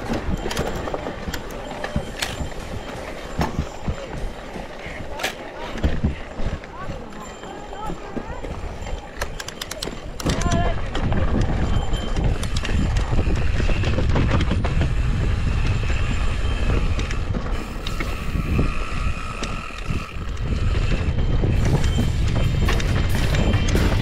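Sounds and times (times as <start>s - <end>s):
bike rattling over rocks: 0.0s - 24.0s
wind rumble on microphone: 7.8s - 24.0s.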